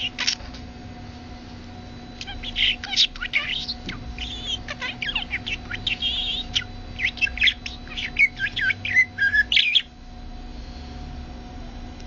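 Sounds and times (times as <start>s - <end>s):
parrot chirps and squawks: 0.0s - 0.4s, 2.2s - 9.9s.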